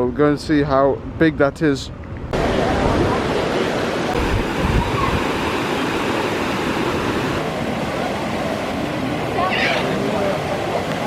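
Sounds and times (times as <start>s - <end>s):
waterfall rushing: 2.4s - 11.0s.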